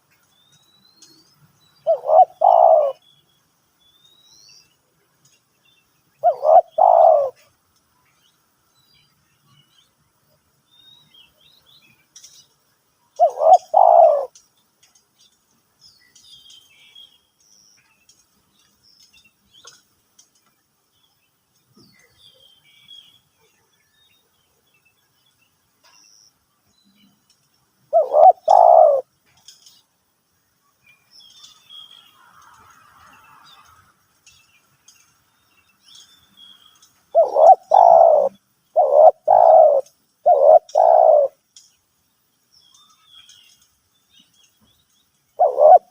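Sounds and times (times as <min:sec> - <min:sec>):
small birds chirping: 0:00.0 - 0:45.9
dove cooing: 0:01.8 - 0:03.0, 0:06.2 - 0:07.5, 0:13.2 - 0:14.3, 0:27.9 - 0:29.1, 0:37.1 - 0:41.4, 0:45.4 - 0:45.9.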